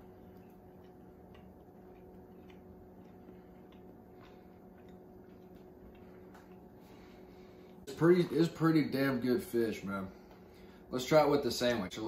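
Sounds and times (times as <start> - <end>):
soft mouth clicks chewing: 0.0 - 6.8
steady low hum: 0.0 - 12.0.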